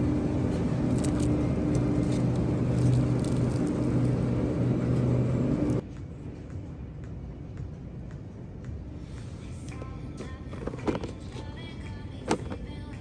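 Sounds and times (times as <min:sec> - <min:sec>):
car rumbling in motion: 0:00.0 - 0:05.8.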